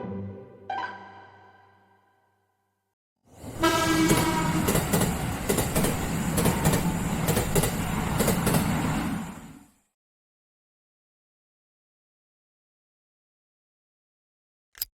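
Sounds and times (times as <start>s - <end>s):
train running rumble: 3.4s - 9.6s
train horn: 3.6s - 4.8s
wheels clacking over rail joints: 4.0s - 8.8s.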